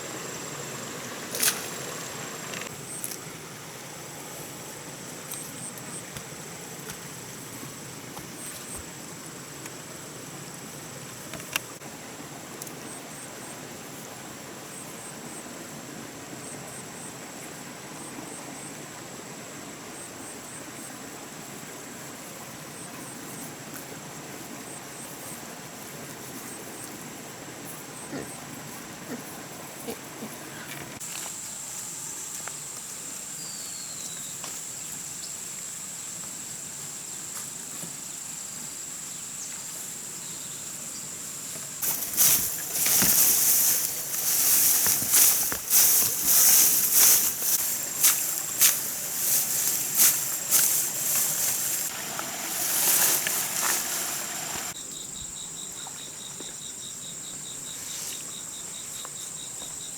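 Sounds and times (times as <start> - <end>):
cricket chirping: 0.0 - 25.5, 26.2 - 59.9
insects trilling: 0.0 - 59.9
rasping high hiss: 41.8 - 54.8.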